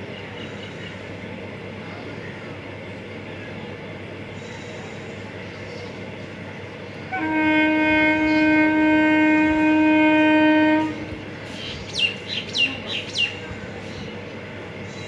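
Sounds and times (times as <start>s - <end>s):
train horn long note: 7.1s - 11.3s.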